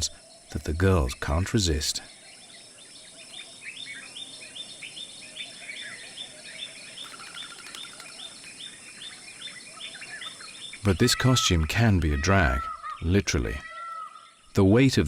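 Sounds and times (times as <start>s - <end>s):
insect hiss: 0.0s - 11.4s
bird chirping call: 0.0s - 14.6s.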